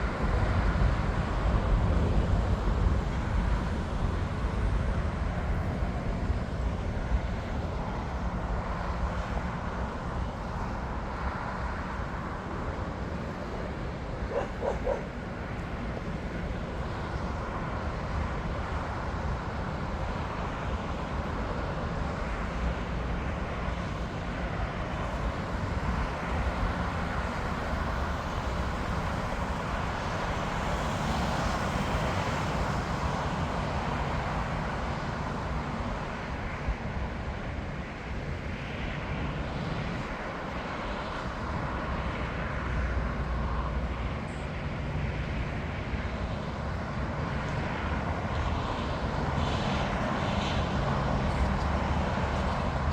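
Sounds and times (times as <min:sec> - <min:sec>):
jet aircraft engines: 0:00.0 - 0:52.9
traffic rumble: 0:00.0 - 0:52.9
dog barking: 0:14.3 - 0:15.2.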